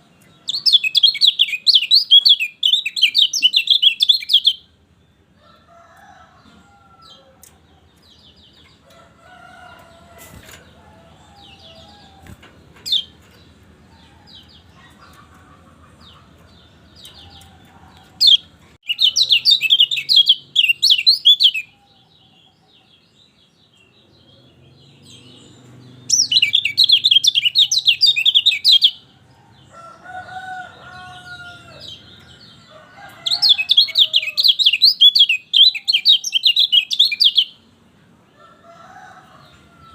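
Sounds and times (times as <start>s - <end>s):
quiet bird chirps and calls: 0.0s - 9.0s, 9.6s - 29.8s, 30.7s - 37.7s
bird twittering: 0.5s - 4.7s, 18.2s - 21.7s, 26.0s - 29.0s.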